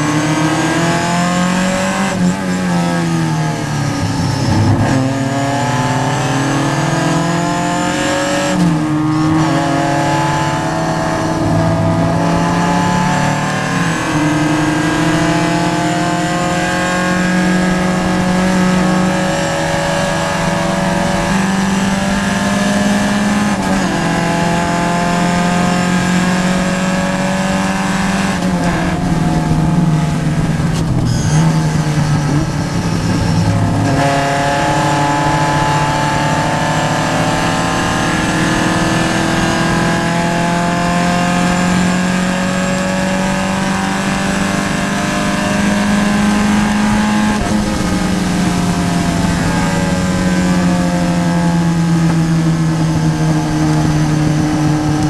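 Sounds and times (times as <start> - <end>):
racing car engine under load: 0.0 - 55.0.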